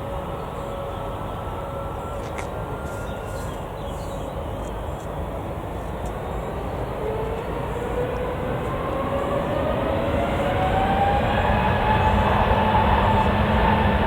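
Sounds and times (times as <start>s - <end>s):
jet engines spooling up: 4.7s - 14.0s.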